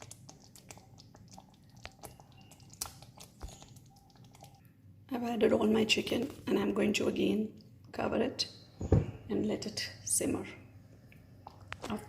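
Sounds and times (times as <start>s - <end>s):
wet squishes in a pan: 0.0s - 4.6s.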